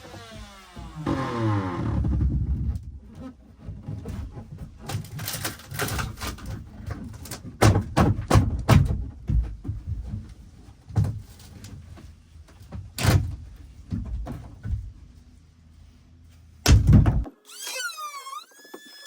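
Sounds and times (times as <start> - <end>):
wood knocking and cracking: 3.6 - 10.2.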